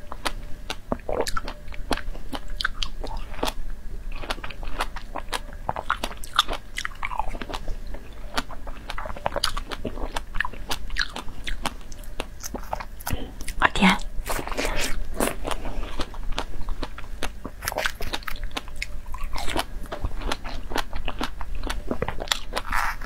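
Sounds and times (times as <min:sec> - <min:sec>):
chewing strawberries: 0:00.0 - 0:23.0.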